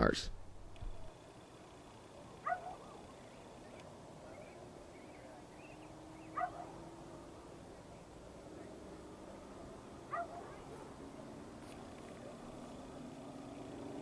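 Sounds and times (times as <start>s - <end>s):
dog barking faintly: 2.2s - 3.2s, 6.3s - 6.9s, 9.7s - 11.0s.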